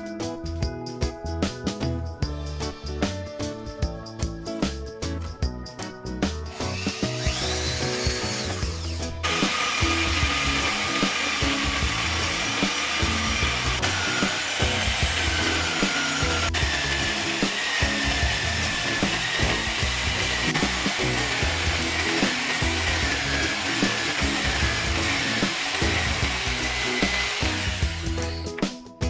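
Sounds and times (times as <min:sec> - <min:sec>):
power tool grinding: 0:06.5 - 0:28.7.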